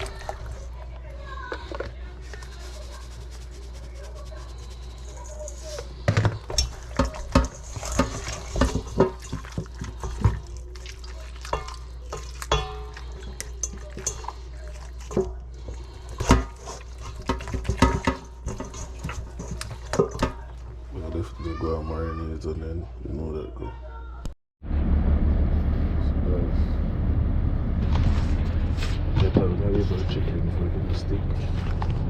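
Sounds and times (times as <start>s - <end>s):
dishes and pans clattering: 5.4s - 20.7s
water sounds: 6.6s - 20.9s
steady low hum: 24.6s - 32.0s.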